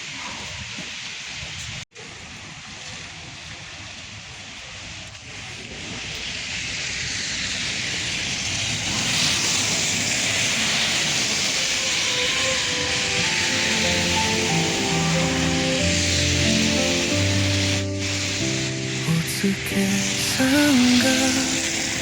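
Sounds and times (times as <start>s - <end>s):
steady rushing hiss: 0.0s - 22.0s
soft music notes: 11.8s - 22.0s.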